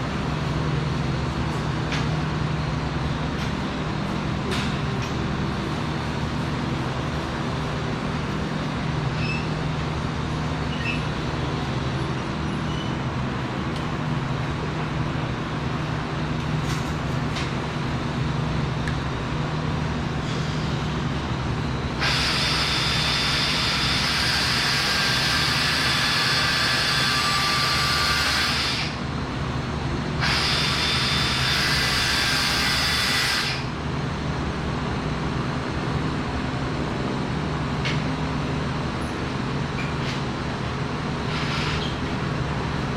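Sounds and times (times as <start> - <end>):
machinery hum: 0.0 - 42.9.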